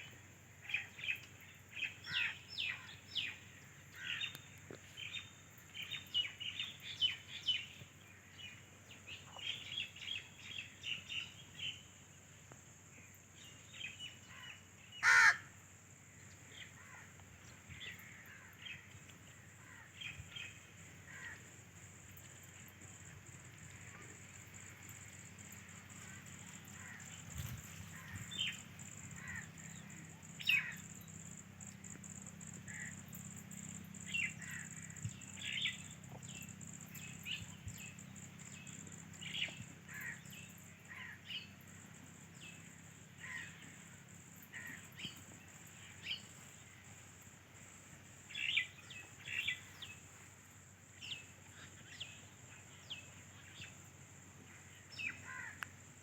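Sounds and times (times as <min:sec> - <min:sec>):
birds chirping: 0:00.0 - 0:11.8, 0:16.4 - 0:47.2, 0:48.2 - 0:50.1.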